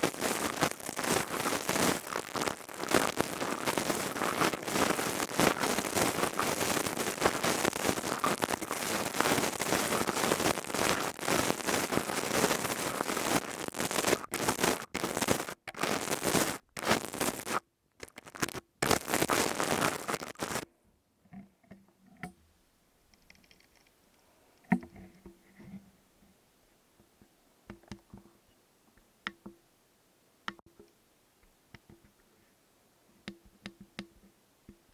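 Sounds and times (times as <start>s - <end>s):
crystal tube crackling patter: 0.0s - 20.6s
faint soft clicks and taps: 30.4s - 32.4s, 33.2s - 34.9s.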